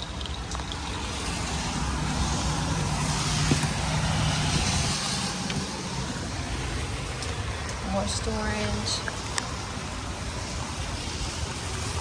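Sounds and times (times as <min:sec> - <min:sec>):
vehicle passing by: 0:00.9 - 0:09.0.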